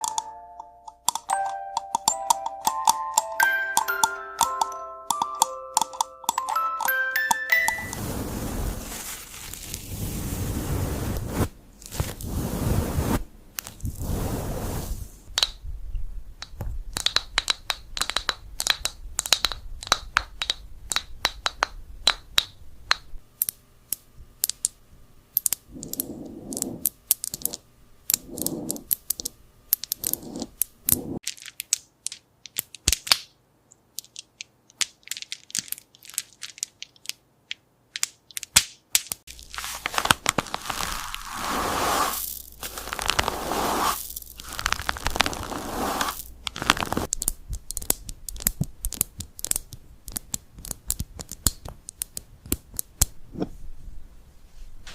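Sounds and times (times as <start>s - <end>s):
scratchy rustling: 7.8s - 15.1s, 28.2s - 28.9s, 39.3s - 47.1s
rubbing on microphone: 7.9s - 15.3s, 25.7s - 26.8s, 28.2s - 28.9s, 30.0s - 31.2s, 40.7s - 47.1s.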